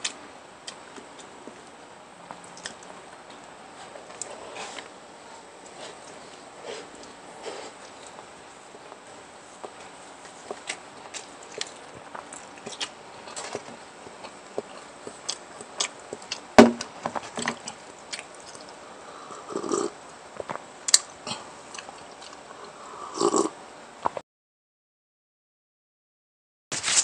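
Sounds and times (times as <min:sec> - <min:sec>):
person chewing: 0:02.4 - 0:02.9, 0:09.6 - 0:16.5, 0:17.2 - 0:23.5.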